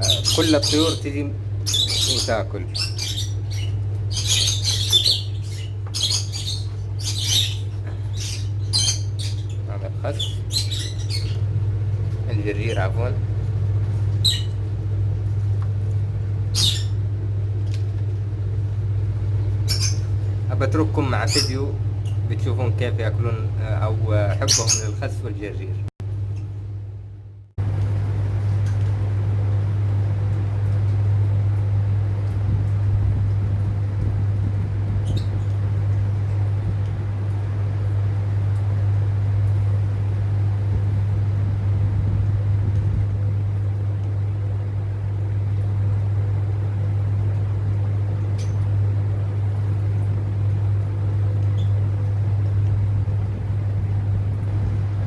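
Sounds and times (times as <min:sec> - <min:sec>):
bird chirp: 0:00.0 - 0:11.6, 0:14.2 - 0:14.6, 0:16.5 - 0:17.1, 0:19.6 - 0:20.2, 0:21.0 - 0:22.5, 0:24.0 - 0:25.1
lovebird squawk: 0:00.0 - 0:11.6, 0:14.2 - 0:14.6, 0:16.5 - 0:17.1, 0:19.6 - 0:20.2, 0:24.4 - 0:25.0
steady low hum: 0:00.0 - 0:55.0.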